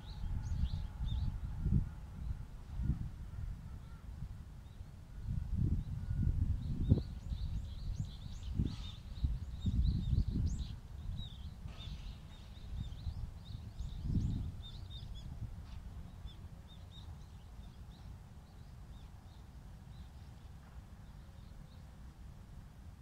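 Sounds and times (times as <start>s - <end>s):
wind rumble on microphone: 0.0s - 23.0s
small birds chirping: 6.6s - 21.9s.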